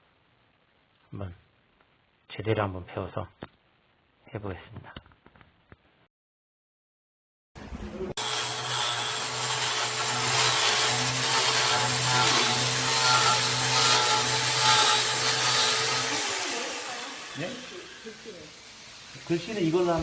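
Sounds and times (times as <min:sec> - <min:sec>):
power tool cutting wood: 0:08.1 - 0:20.0.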